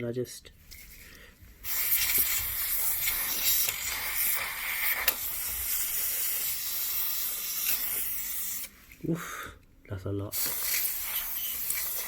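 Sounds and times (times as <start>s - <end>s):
compressed air spraying hiss: 1.6s - 8.8s, 10.3s - 12.0s.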